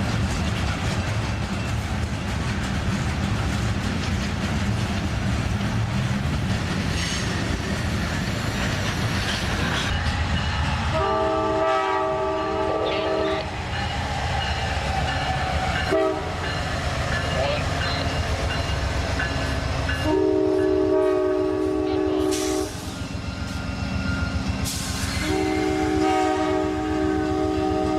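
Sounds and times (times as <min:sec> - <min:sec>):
train wheels rumbling on rail: 0:00.0 - 0:27.9
locomotive horn: 0:10.9 - 0:13.5, 0:15.7 - 0:16.6, 0:20.0 - 0:22.9, 0:25.0 - 0:27.9.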